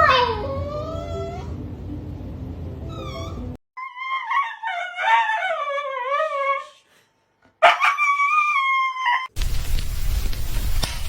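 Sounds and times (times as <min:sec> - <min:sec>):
dog whining: 0:00.0 - 0:01.6, 0:02.8 - 0:06.8.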